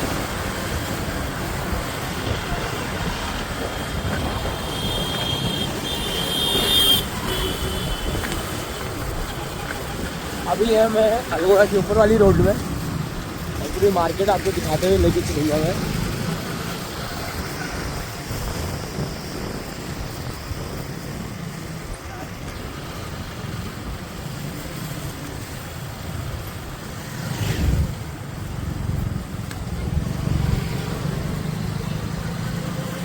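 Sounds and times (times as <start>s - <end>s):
road noise: 0.0s - 33.0s
motorcycle engine: 12.2s - 20.0s, 22.7s - 33.0s.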